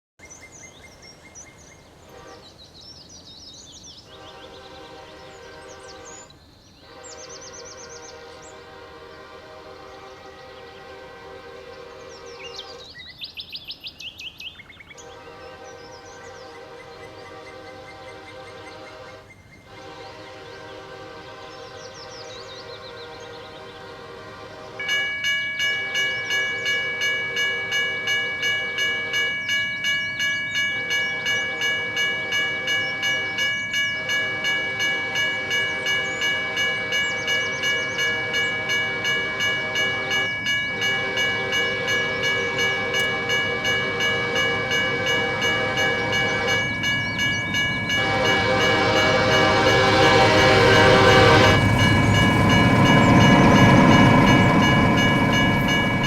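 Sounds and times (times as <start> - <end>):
locomotive horn blasts: 2.1 - 2.6, 4.1 - 12.9, 15.0 - 56.0
train rumbling: 15.0 - 56.0
crossing bell ringing: 24.2 - 56.0.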